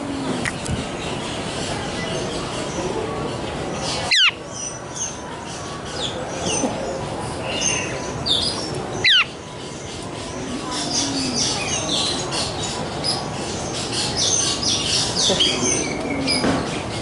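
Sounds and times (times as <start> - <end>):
birds chirping and whistling: 7.4 - 17.0.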